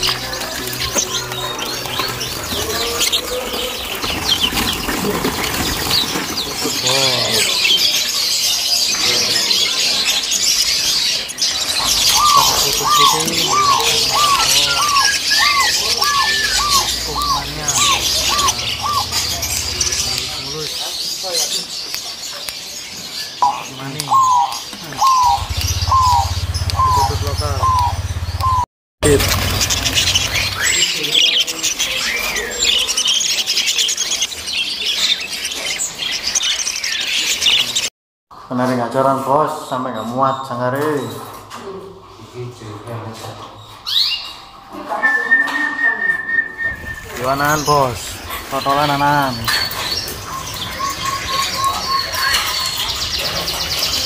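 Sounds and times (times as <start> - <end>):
caged birds chirping: 0.0 - 54.0
loud bird squawking call: 11.2 - 20.8, 23.4 - 31.4.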